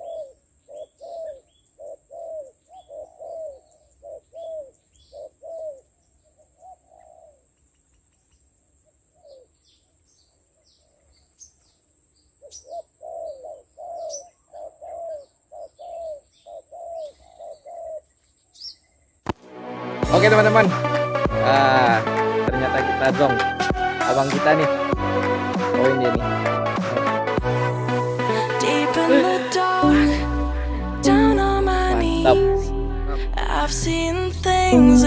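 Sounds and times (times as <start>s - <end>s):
doves cooing: 0.0s - 7.5s, 12.4s - 18.1s
small birds chirping faintly: 0.0s - 19.3s.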